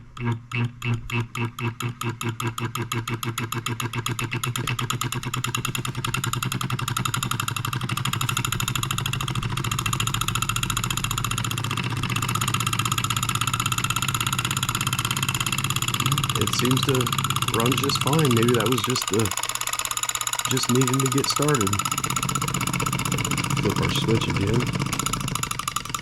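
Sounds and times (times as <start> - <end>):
toy solenoid engine running: 0.2 - 26.0
steady low hum: 8.0 - 25.8.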